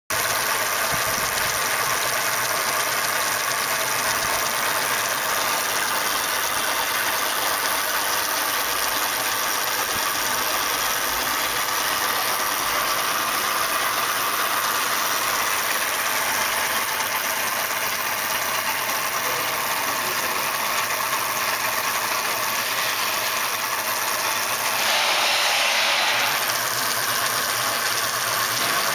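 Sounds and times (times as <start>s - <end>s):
electric motor whirring: 20.2s - 28.9s.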